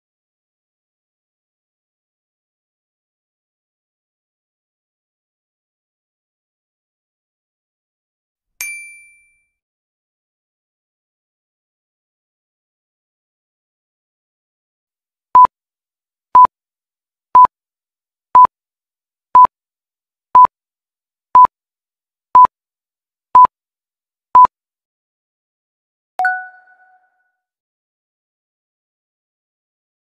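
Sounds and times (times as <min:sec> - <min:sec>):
countdown timer beeps: 0:26.2 - 0:27.0.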